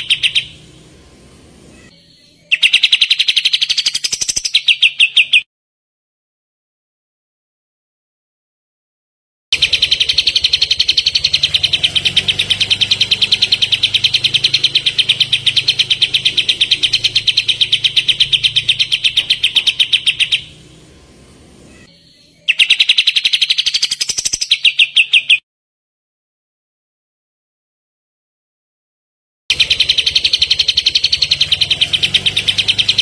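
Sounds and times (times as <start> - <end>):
bird singing a fast trill: 0.0 - 0.9, 1.7 - 5.5, 9.6 - 20.8, 21.7 - 25.4, 29.5 - 33.0.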